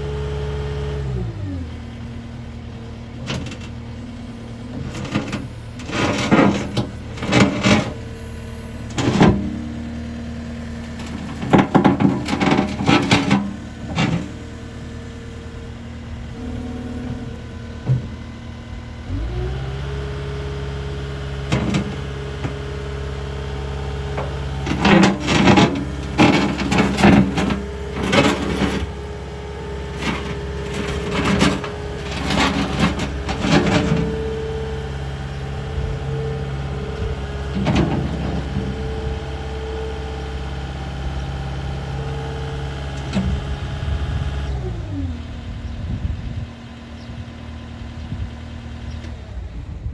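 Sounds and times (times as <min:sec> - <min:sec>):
diesel engine running: 0:00.0 - 0:49.9
machine knocks and rattles: 0:23.8 - 0:34.5.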